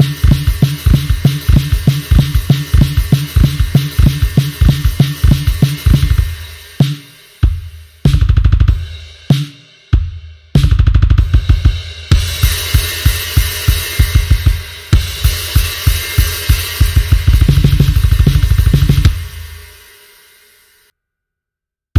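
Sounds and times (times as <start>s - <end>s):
cymbals ringing: 0.0s - 7.5s
drum hits and low drum runs: 0.0s - 19.7s
kick and snare beat: 0.0s - 19.9s.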